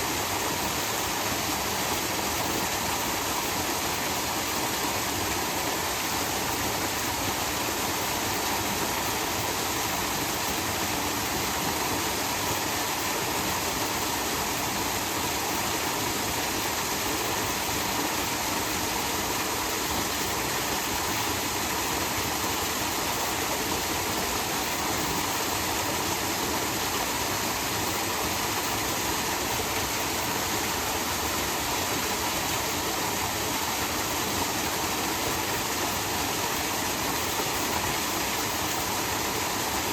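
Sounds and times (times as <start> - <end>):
small waterfall rushing: 0.0 - 39.9.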